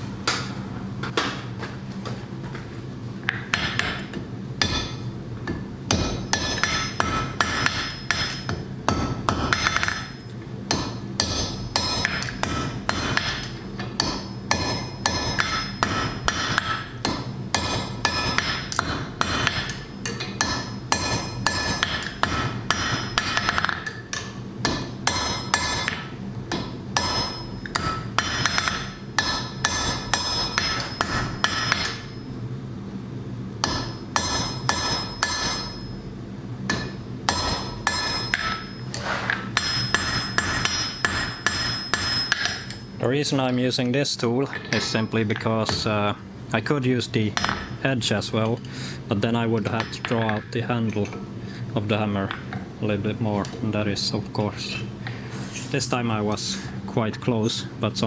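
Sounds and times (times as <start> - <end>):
steady low hum: 0.0 - 58.0
hammer striking iron on anvil: 3.5 - 32.3, 33.6 - 36.0, 36.7 - 42.9, 47.4 - 47.8.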